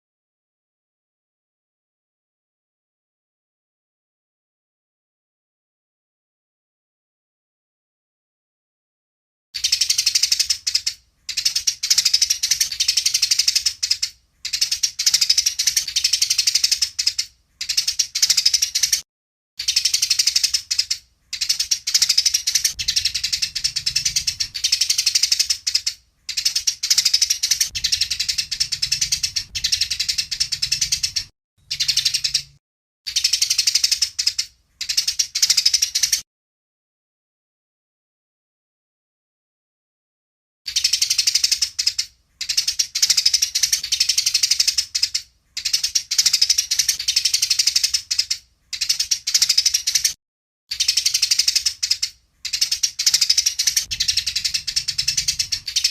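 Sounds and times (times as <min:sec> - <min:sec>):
sparrows chirping rapidly: 0:09.6 - 0:19.0, 0:19.6 - 0:36.2, 0:40.7 - 0:55.9.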